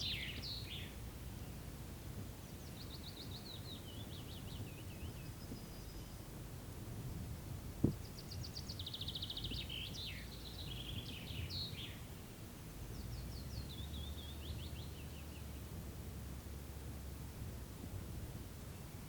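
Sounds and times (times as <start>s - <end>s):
songbirds singing: 0.0s - 6.6s, 7.2s - 15.8s
low steady rumble: 0.0s - 19.0s.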